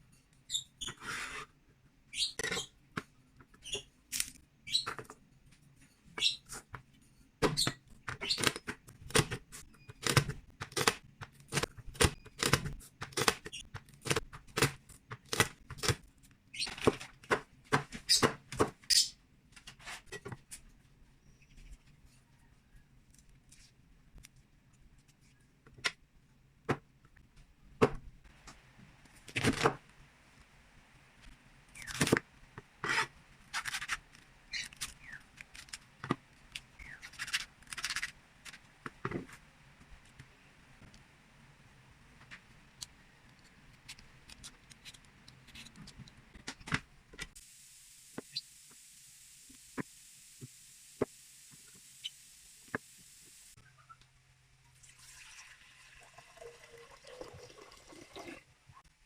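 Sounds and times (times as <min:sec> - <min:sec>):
knife scraping a board: 0:00.8 - 0:01.5, 0:32.8 - 0:34.7.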